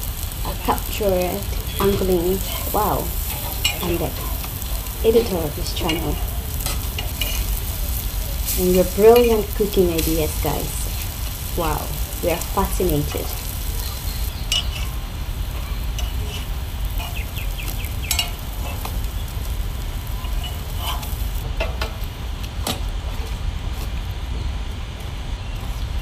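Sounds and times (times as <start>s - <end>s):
omelettes sizzling on griddle: 0.0s - 26.0s
steady low rumble: 0.0s - 26.0s
spatula clinking and scraping: 1.6s - 8.6s, 13.1s - 15.0s, 15.6s - 17.4s, 18.0s - 19.0s, 20.2s - 21.2s.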